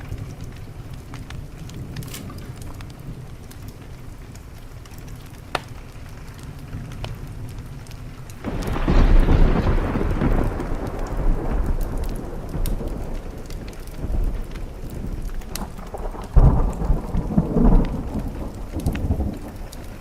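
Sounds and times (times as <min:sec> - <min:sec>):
steady rain: 0:00.0 - 0:20.0
wood fire crackling: 0:00.0 - 0:20.0
thunder clap: 0:06.5 - 0:20.0.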